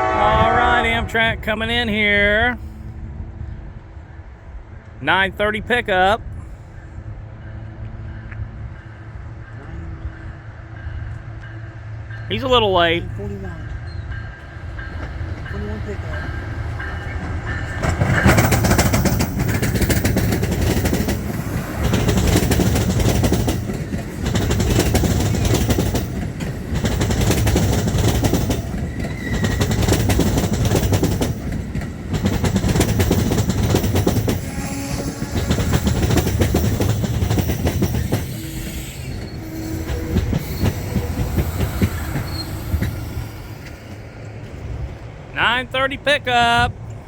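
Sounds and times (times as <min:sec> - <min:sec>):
train wheels clattering over track: 0:13.7 - 0:45.2
train wheel squeal: 0:13.8 - 0:26.2, 0:26.8 - 0:31.6, 0:32.2 - 0:44.4.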